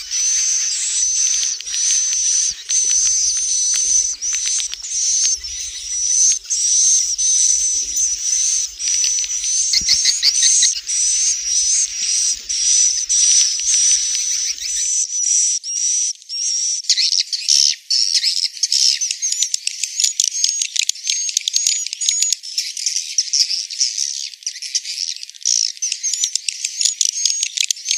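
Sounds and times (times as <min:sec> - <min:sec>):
swiftlets chirping and twittering: 0:00.0 - 0:15.0.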